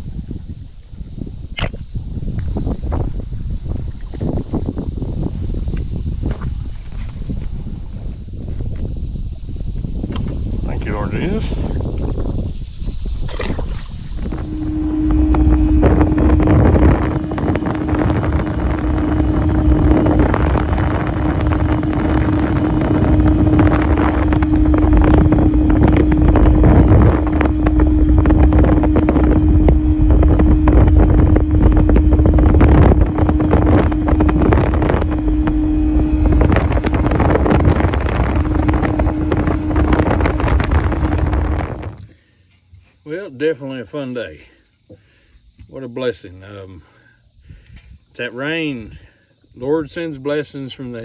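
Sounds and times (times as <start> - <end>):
wind buffeting microphone: 0.0 - 42.0
outboard motor running: 14.3 - 42.0.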